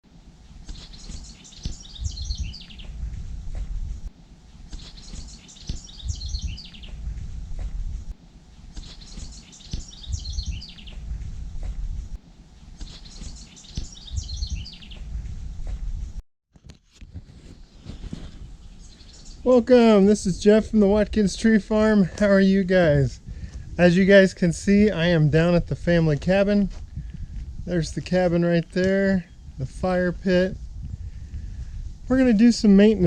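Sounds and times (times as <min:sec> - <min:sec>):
bird song: 0:00.5 - 0:08.1, 0:08.7 - 0:16.1, 0:18.6 - 0:19.6, 0:29.0 - 0:29.7
low rumble: 0:02.0 - 0:04.5, 0:06.0 - 0:08.6, 0:10.0 - 0:12.6, 0:14.2 - 0:16.2.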